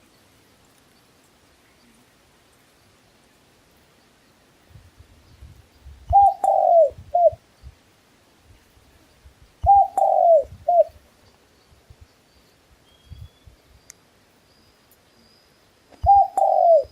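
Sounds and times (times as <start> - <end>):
dove cooing: 6.1 - 7.4, 9.6 - 11.0, 16.0 - 16.9.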